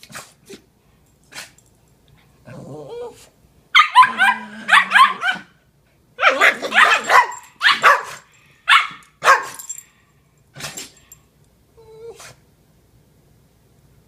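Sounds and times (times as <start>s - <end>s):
dog whining: 2.5s - 3.3s, 11.8s - 12.4s
dogs barking: 3.8s - 5.5s, 6.2s - 9.7s.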